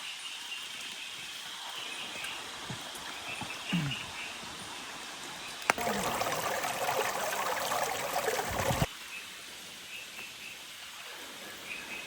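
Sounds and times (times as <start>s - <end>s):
dense water noise: 2.2s - 8.9s.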